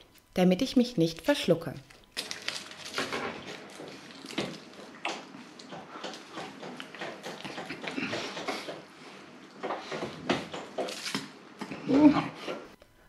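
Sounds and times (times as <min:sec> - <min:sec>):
person chewing wetly: 0:02.1 - 0:08.8.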